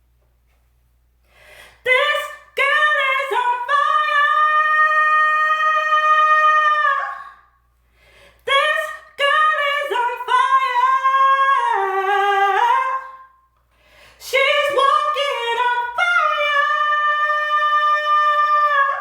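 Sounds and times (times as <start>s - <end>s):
woman breathing: 1.2s - 1.9s, 7.8s - 8.5s, 13.7s - 14.3s
woman singing unaccompanied: 1.8s - 7.4s, 8.4s - 13.3s, 14.2s - 19.0s.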